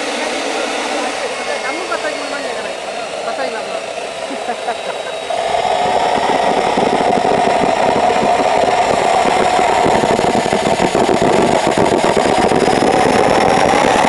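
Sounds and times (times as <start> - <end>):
faint high whine: 0.0 - 14.0
turbojet engine roaring: 0.0 - 14.0.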